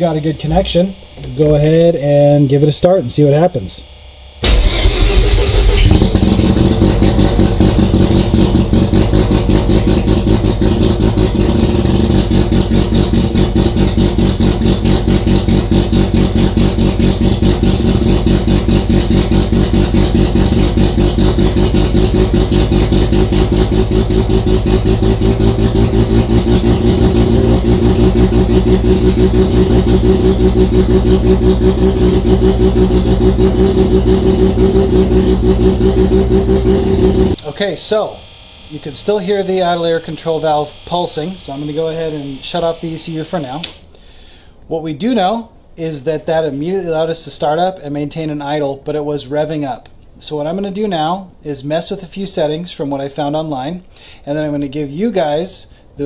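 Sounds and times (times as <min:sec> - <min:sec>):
rotary engine high idle: 0:04.4 - 0:43.1.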